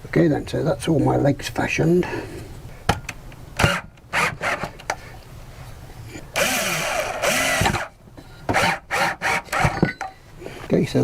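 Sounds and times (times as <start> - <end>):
power drill driving screw: 3.6 - 4.7, 6.4 - 7.9, 8.5 - 9.8.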